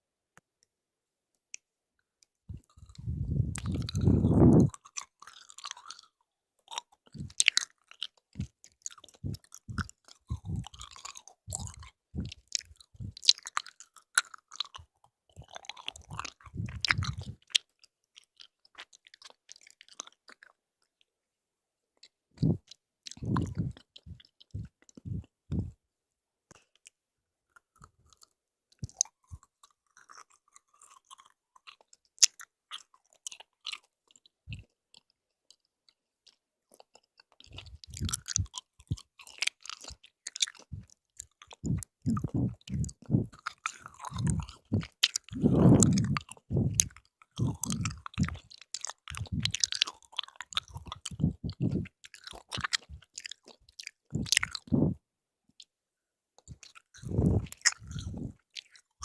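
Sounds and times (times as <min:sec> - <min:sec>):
chewing jelly candy: 0:01.5 - 0:21.1, 0:22.0 - 0:25.8, 0:26.5 - 0:55.0, 0:56.4 - 0:59.0
small mouth clicks: 0:02.5 - 0:20.6, 0:22.0 - 0:25.8, 0:26.5 - 0:55.0, 0:56.4 - 0:59.0.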